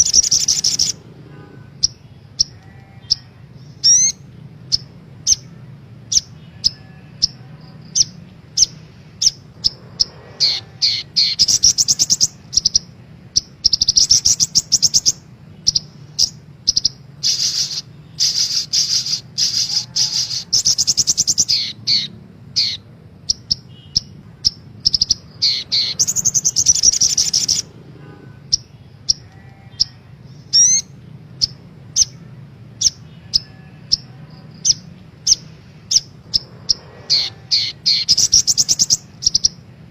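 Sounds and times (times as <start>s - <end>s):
bird chattering trills: 0.0s - 39.9s
faint low hum: 0.0s - 39.9s
bird calling high chips: 5.3s - 27.7s, 32.8s - 39.6s.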